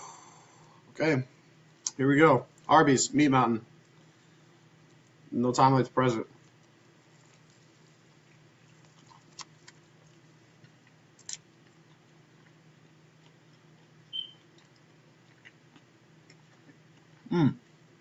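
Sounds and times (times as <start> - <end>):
faint low hum: 0.0 - 18.0
man chewing: 6.4 - 17.8.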